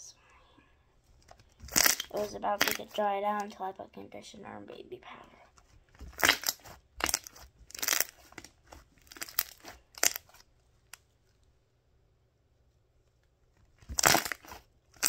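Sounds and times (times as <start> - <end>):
slime squishing by hand: 1.2 - 3.4, 5.9 - 11.2, 13.6 - 15.0.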